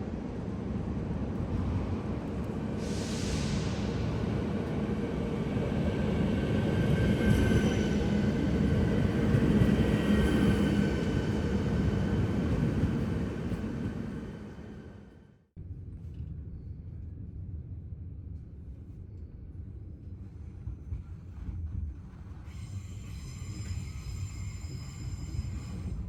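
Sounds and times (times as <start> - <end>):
train wheels rumbling on rails: 19.5 - 26.0.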